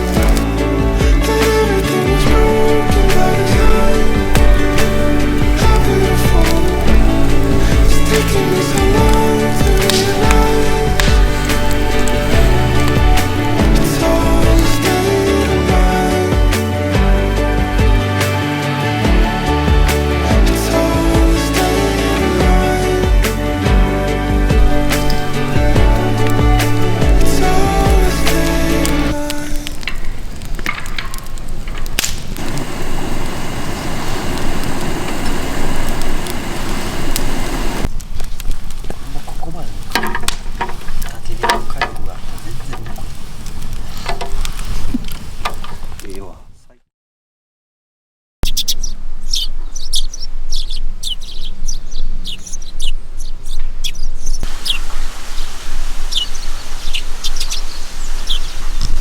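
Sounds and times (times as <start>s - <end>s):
campfire crackling and popping: 0.0s - 16.7s, 17.6s - 46.4s, 52.8s - 59.0s
birds chirping: 2.1s - 16.1s, 23.8s - 38.0s, 48.4s - 59.0s.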